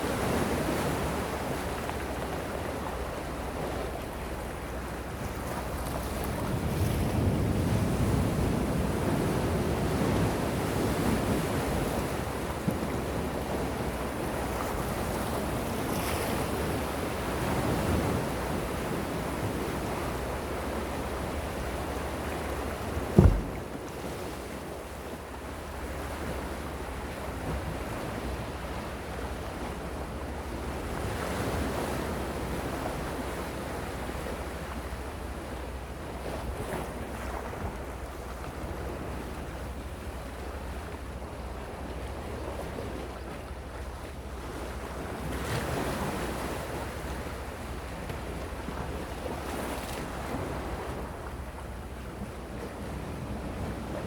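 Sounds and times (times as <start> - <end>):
sea waves washing in: 22.4 - 24.6
sharp thump: 23.2 - 23.8.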